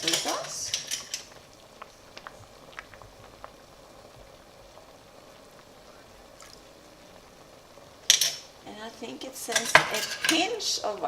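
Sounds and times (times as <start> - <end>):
pot of broth simmering: 0.0 - 11.0.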